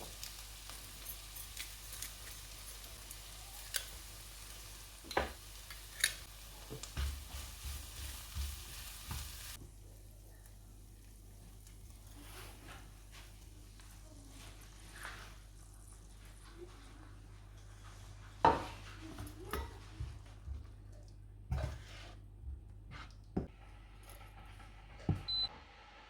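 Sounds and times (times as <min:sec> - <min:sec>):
food sizzling in a frying pan: 0:00.0 - 0:16.8
utensil tapping and scraping pan: 0:05.0 - 0:09.4, 0:21.5 - 0:23.5.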